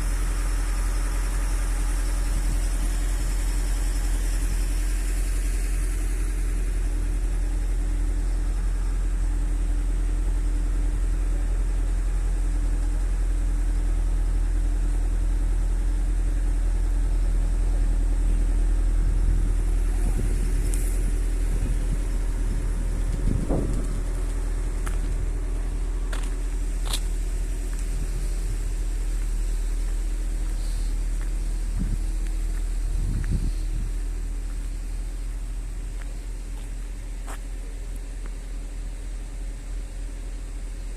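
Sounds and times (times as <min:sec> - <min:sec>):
engine running with low rumble: 0:00.0 - 0:40.9.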